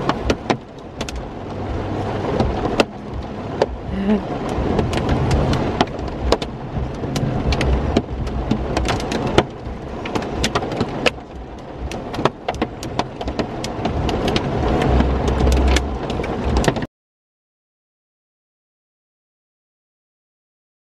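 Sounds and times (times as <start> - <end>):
low thunder rumble: 0.0 - 16.7
rain tapping on vehicle: 0.0 - 16.9
rain wash: 0.0 - 16.9.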